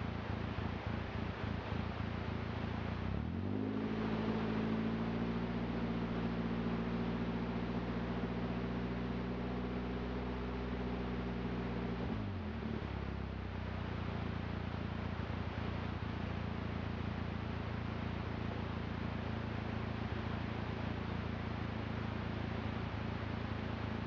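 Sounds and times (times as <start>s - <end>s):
car engine revving: 1.7s - 7.2s.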